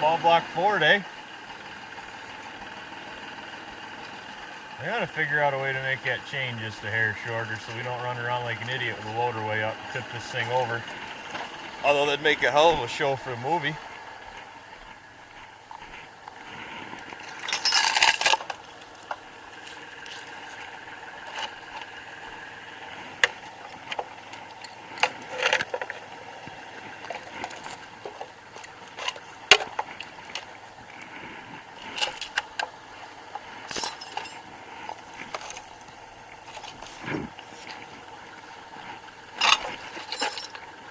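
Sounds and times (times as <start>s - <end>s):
steady background hum: 0.0s - 40.9s
metal chain clinking and rattling: 17.2s - 22.0s, 23.2s - 26.3s, 26.9s - 30.6s, 31.8s - 32.7s, 33.3s - 37.0s, 39.4s - 40.8s.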